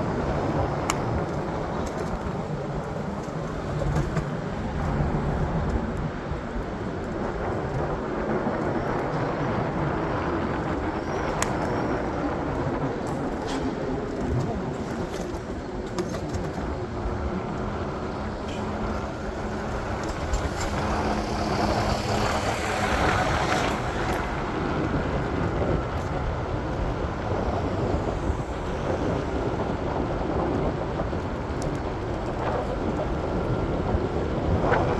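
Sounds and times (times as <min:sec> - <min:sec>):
street traffic engine hum: 0:00.0 - 0:34.9
vehicle passing close: 0:17.6 - 0:25.2.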